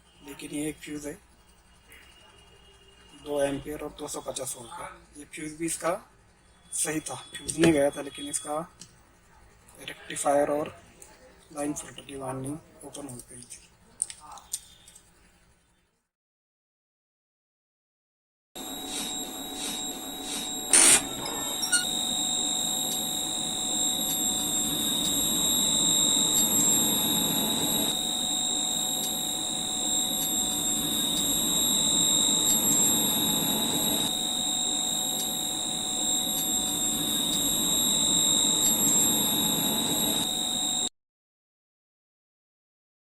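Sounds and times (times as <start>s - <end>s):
high-pitched electronic whine: 5.7s - 8.7s, 18.6s - 40.9s.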